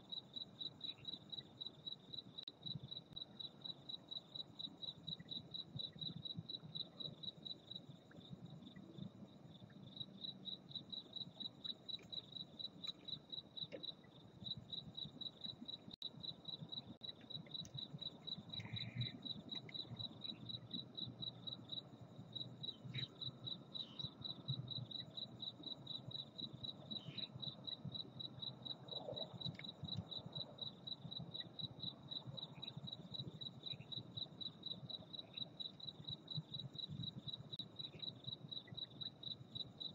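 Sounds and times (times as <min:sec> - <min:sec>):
cricket chirping: 0:00.0 - 0:39.9
faint low rumble: 0:12.8 - 0:34.2.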